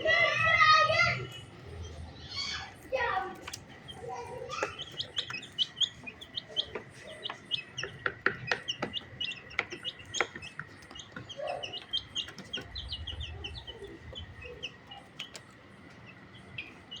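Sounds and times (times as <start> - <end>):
chicks peeping: 0.0 - 17.0
sharp taps: 4.6 - 12.7.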